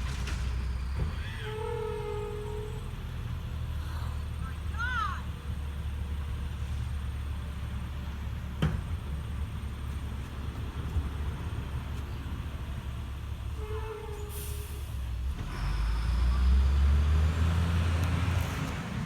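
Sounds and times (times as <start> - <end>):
truck engine rumbling: 0.0 - 19.0.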